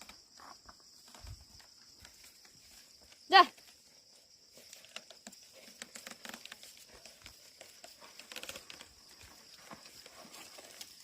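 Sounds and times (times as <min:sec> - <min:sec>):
hooves clicking on soil: 0:00.0 - 0:11.0
plough working through soil: 0:04.5 - 0:11.0.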